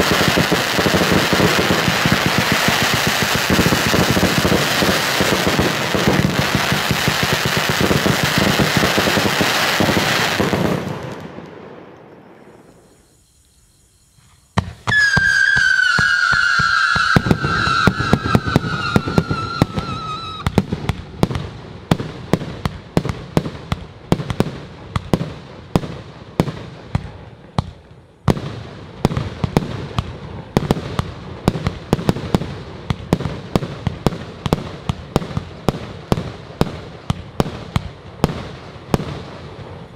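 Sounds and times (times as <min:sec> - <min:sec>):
fireworks sharp bangs: 0:00.0 - 0:13.0, 0:14.2 - 0:39.9
fireworks crackling: 0:00.0 - 0:39.9
firework whistle sliding down: 0:12.4 - 0:20.5.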